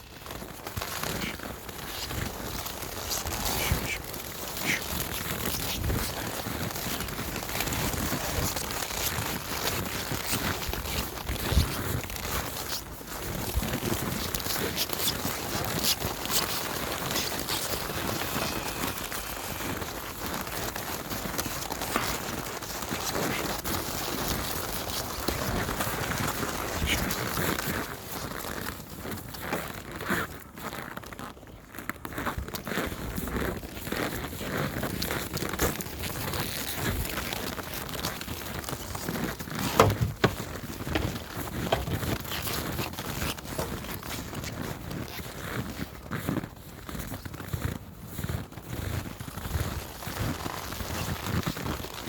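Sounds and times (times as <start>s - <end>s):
horse hooves crunching on snow: 0.0s - 52.0s.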